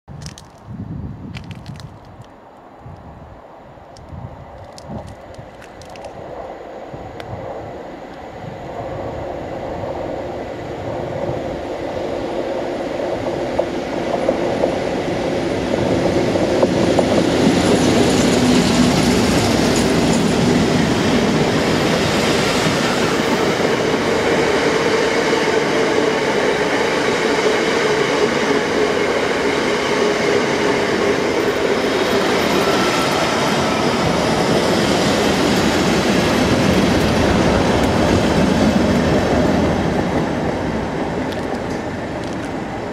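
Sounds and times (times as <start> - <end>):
diesel locomotive engine: 4.0 - 42.9
train wheels rolling: 9.3 - 42.9.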